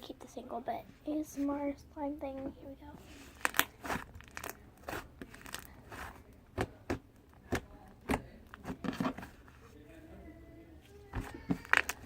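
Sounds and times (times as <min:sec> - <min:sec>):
slime snapping: 0:03.4 - 0:05.7.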